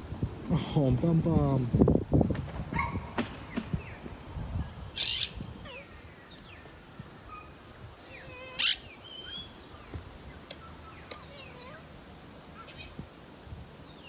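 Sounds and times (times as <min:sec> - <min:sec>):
harsh bird screeches: 0:05.0 - 0:05.4, 0:08.6 - 0:09.4.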